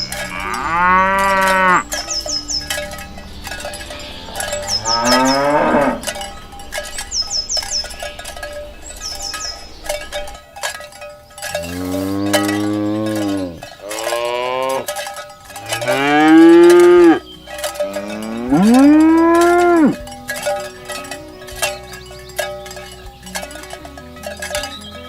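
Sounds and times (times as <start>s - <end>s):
cattle mooing: 0.0s - 3.0s, 3.8s - 6.5s, 11.5s - 14.9s, 15.6s - 22.0s
cowbells clinking: 0.0s - 25.0s.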